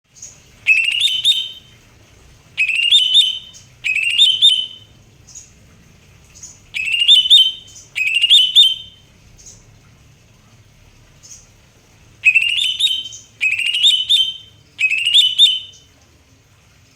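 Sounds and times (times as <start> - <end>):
faint high bird calls: 0.1 - 1.8, 2.6 - 5.5, 6.4 - 9.6, 12.2 - 16.0
bird singing whistled phrases: 0.2 - 1.8, 2.6 - 4.9, 6.8 - 9.0, 12.2 - 15.9.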